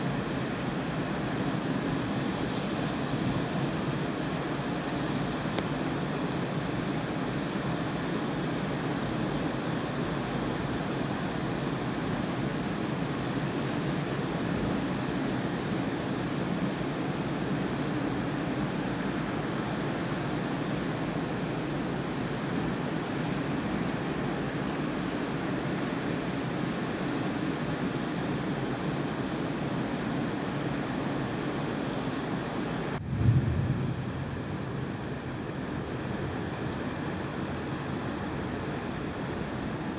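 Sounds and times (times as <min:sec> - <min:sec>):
steady rushing noise: 0:32.8 - 0:35.3.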